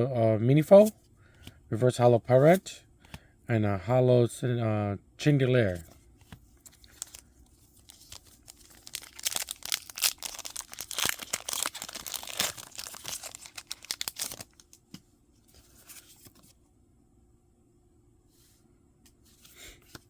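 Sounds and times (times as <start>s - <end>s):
foil wrapper tearing and crinkling: 7.8s - 14.8s.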